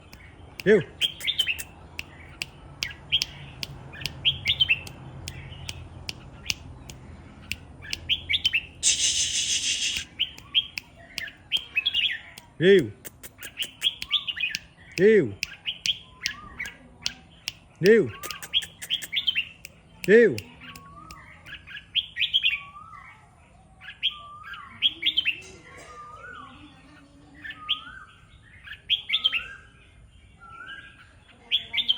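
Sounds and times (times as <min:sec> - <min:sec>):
sharp ticks: 0:00.0 - 0:08.1, 0:08.8 - 0:21.6
bulbul singing: 0:00.0 - 0:23.2
bird chirping calls: 0:00.0 - 0:31.9
harsh rasping burst: 0:08.8 - 0:10.1.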